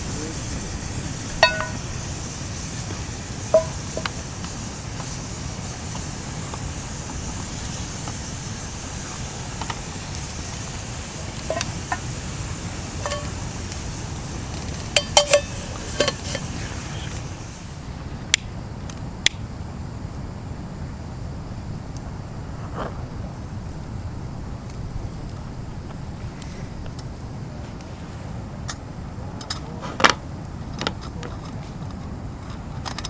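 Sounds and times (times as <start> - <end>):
low outdoor rumble: 0.0 - 33.0
metal cookware clinking: 1.4 - 1.9, 3.5 - 4.1, 11.4 - 12.0, 13.0 - 13.4, 15.0 - 16.5.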